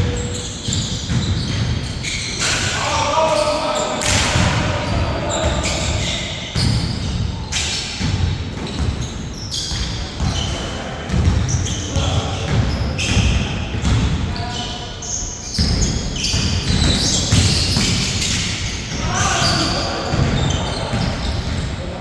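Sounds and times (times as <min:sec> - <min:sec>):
basketball bouncing on hard floor: 0:15.6 - 0:18.1
players calling out: 0:18.9 - 0:21.2.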